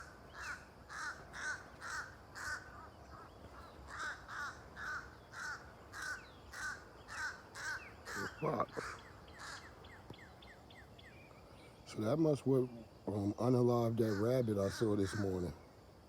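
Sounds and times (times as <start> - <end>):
crow cawing: 0.0 - 9.8, 14.0 - 15.4.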